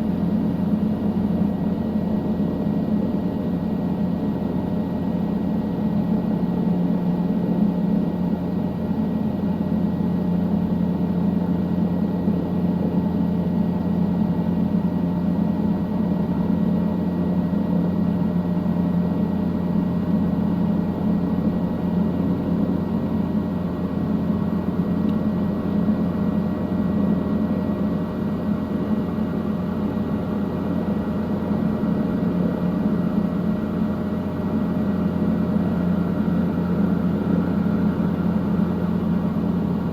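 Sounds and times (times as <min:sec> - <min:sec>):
helicopter drone: 0:14.8 - 0:39.9.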